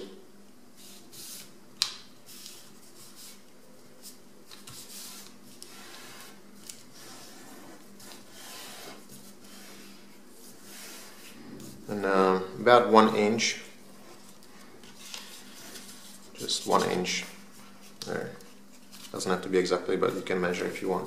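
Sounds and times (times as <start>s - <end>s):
paper rustling and crinkling: 13.9s - 19.4s.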